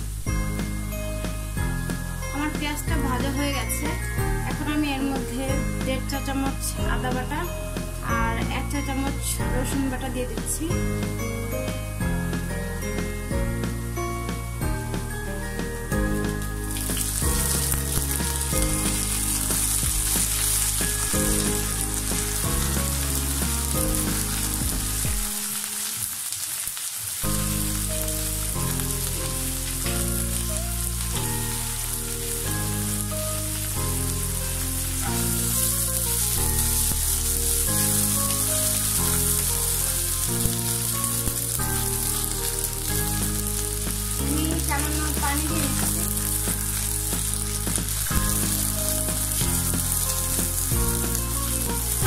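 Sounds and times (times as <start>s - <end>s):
onions sizzling in oil: 0.0s - 52.0s
spatula stirring in a wok: 16.1s - 25.2s.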